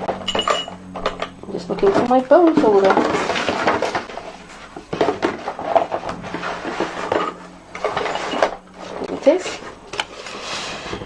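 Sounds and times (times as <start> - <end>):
tools clattering on tabletop: 0.1 - 1.4, 4.9 - 9.1.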